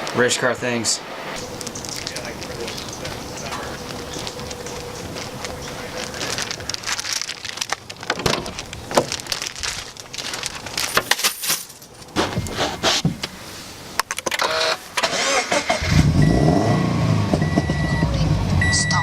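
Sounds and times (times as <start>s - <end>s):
car engine starting and running: 14.2s - 19.0s.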